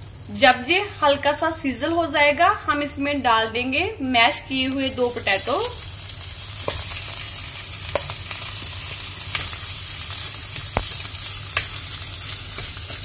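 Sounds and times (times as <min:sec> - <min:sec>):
hot oil sizzling: 0:00.0 - 0:02.8, 0:04.2 - 0:13.0
spatula stirring food: 0:06.2 - 0:13.0.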